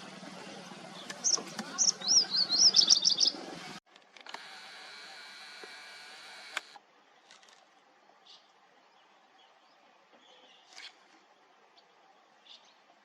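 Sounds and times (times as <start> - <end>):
bird chirping: 0.9 - 3.8.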